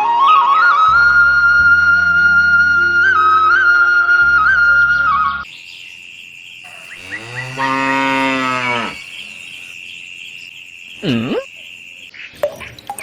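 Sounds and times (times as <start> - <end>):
cow mooing: 6.7 - 9.8.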